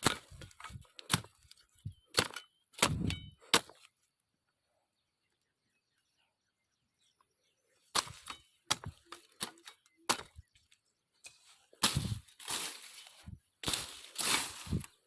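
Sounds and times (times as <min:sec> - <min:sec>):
branches crackling and rustling: 0:08.0 - 0:15.0.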